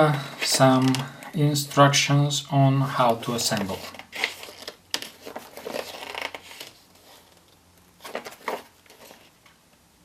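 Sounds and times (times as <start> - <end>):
paper rustling: 3.0 - 9.5.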